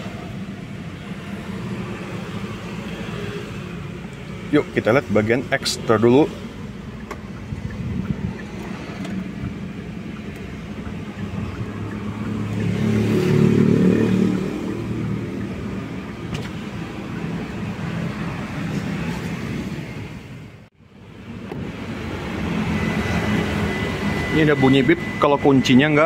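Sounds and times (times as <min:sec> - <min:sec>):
car engine idling: 0:03.6 - 0:19.1.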